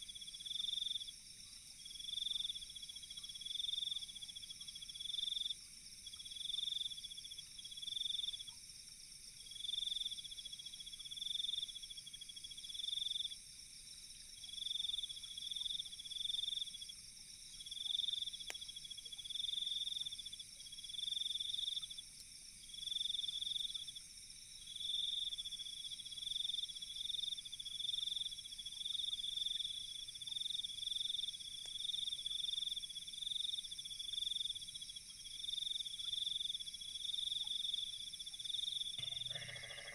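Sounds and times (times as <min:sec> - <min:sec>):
crickets trilling: 0:27.8 - 0:39.9
high insect drone: 0:39.0 - 0:39.9.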